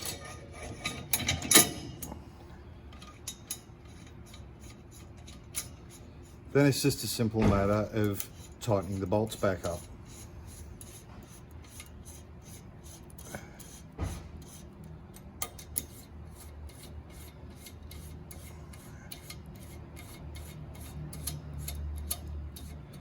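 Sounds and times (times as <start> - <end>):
metal rubbing and scraping: 0.0 - 2.2, 3.0 - 7.0, 7.6 - 14.8
steady low hum: 0.0 - 23.0
small metal clicks: 20.0 - 23.0.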